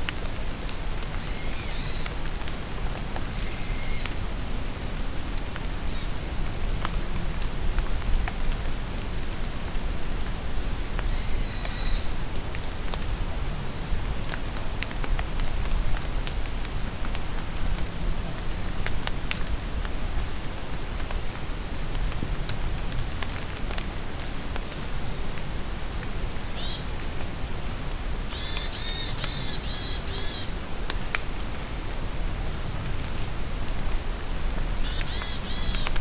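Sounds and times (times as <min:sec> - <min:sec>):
rain pattering: 0:00.0 - 0:36.0
birds singing: 0:34.8 - 0:36.0.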